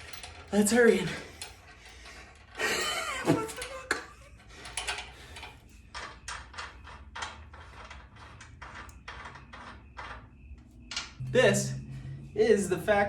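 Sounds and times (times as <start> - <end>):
metal tools clanking and scraping: 0.0 - 10.3.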